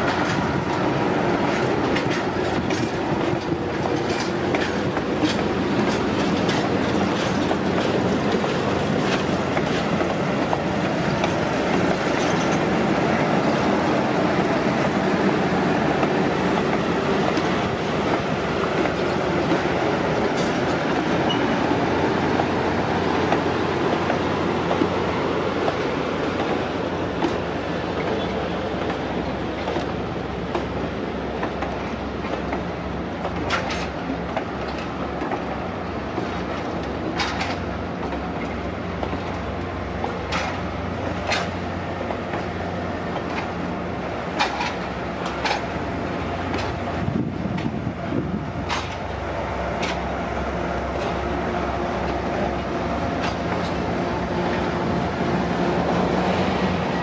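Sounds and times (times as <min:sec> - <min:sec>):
train wheels rumbling on rail: 0:00.0 - 0:57.0
wheels clicking over track: 0:36.1 - 0:39.4, 0:44.3 - 0:45.8, 0:48.6 - 0:49.1.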